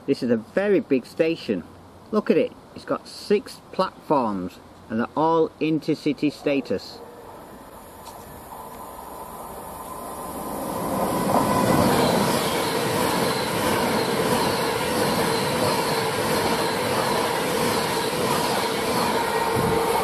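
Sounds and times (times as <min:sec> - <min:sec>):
train wheels rushing on rail: 0:07.2 - 0:20.0.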